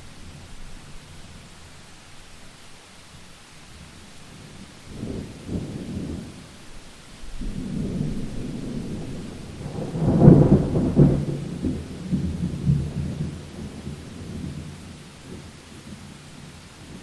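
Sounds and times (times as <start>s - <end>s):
steady rain: 0.0s - 17.0s
thunder rumbling: 4.4s - 17.0s.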